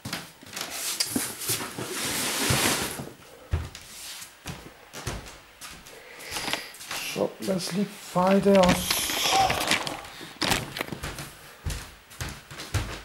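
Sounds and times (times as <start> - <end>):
rustling scrape: 0.7 - 3.1.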